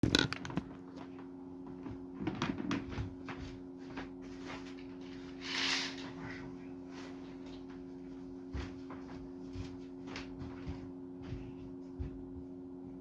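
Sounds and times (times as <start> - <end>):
clicks and knocks of handling: 0.0 - 1.2.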